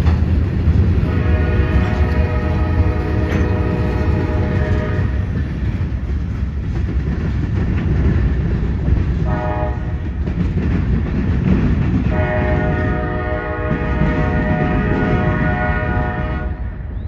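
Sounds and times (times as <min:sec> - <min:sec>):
freight train rumbling past: 0:00.0 - 0:17.0
locomotive air horn blast: 0:01.0 - 0:05.3, 0:09.2 - 0:10.0, 0:12.1 - 0:16.9.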